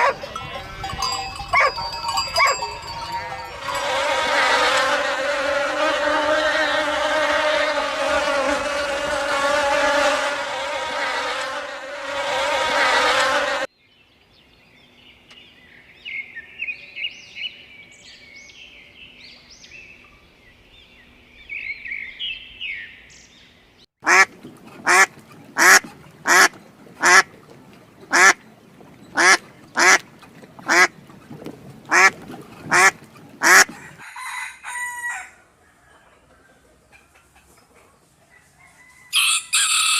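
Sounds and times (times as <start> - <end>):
swarm of insects buzzing: 3.8 - 13.7
duck quacking: 24.0 - 27.3, 28.1 - 28.4, 29.1 - 30.0, 30.6 - 30.9, 31.9 - 33.9.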